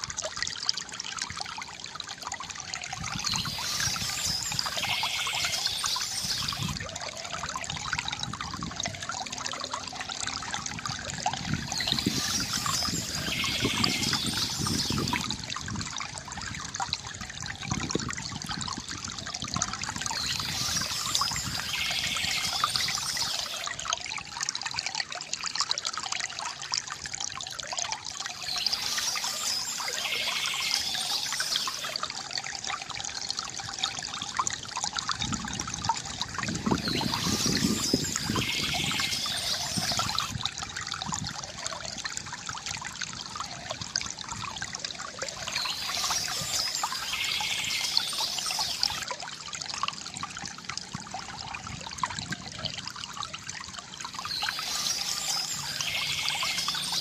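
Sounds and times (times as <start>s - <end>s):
river water gurgling: 0.0s - 57.0s
small birds chirping: 3.2s - 6.8s, 11.6s - 15.2s, 20.1s - 23.6s, 28.3s - 32.0s, 36.6s - 40.3s, 45.3s - 49.0s, 54.2s - 57.0s.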